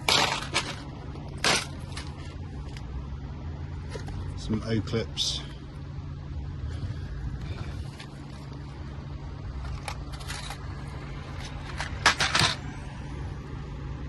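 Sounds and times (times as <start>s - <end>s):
small hard parts clicking and rattling: 0.0s - 2.8s, 9.5s - 12.7s
steady low hum: 0.0s - 14.0s.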